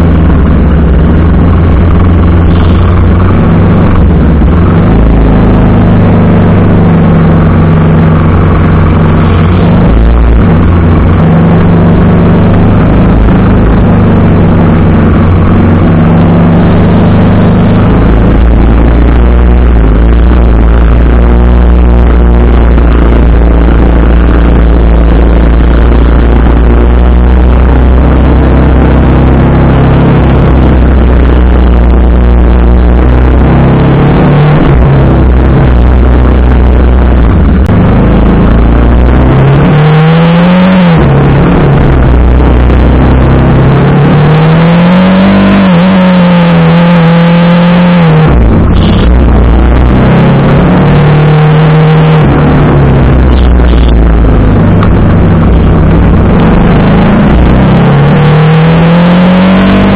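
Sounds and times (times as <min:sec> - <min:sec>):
heavy low rumble: 0:00.0 - 0:59.9
motorcycle engine revving: 0:00.0 - 0:59.9.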